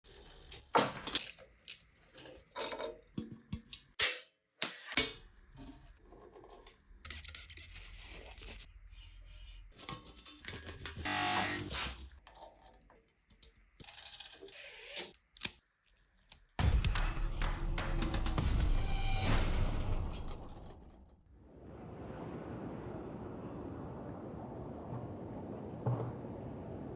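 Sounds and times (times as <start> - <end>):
scraping and rasping: 5.6 - 12.2.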